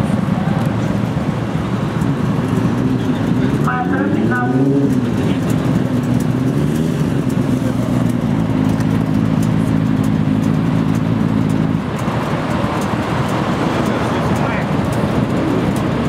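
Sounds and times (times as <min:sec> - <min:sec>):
low road rumble: 0:00.0 - 0:16.0
motorcycle engine running: 0:00.0 - 0:16.0.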